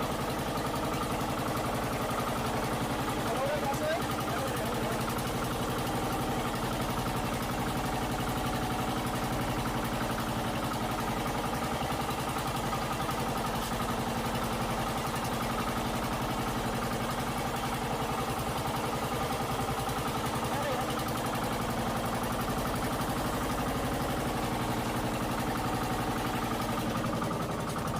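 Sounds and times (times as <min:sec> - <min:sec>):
boat engine running: 0:00.0 - 0:27.9.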